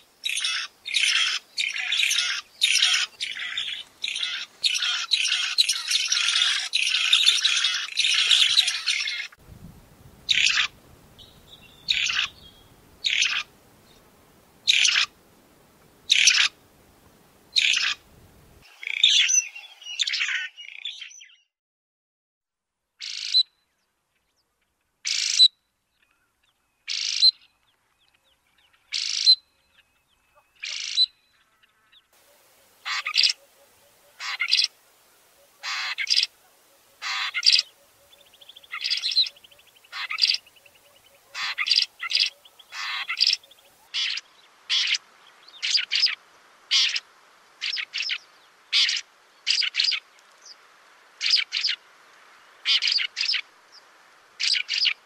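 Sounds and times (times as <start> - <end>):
faint background hiss: 0.0 - 20.1, 22.8 - 55.0
bird calling harshly: 0.2 - 9.4, 10.3 - 10.8, 11.6 - 13.5, 14.7 - 15.2, 16.1 - 16.6, 17.6 - 18.0, 26.9 - 27.4, 28.9 - 29.5, 30.4 - 31.2, 32.2 - 45.0, 45.6 - 47.0, 47.6 - 50.0.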